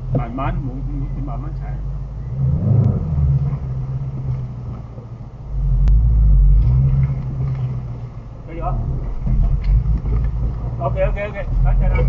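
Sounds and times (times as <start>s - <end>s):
car engine and road noise rumble: 0.0s - 12.0s.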